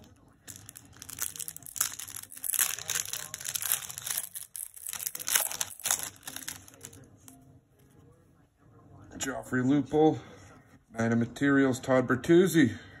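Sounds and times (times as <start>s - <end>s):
wrapper crinkling and rustling: 0.0s - 7.1s.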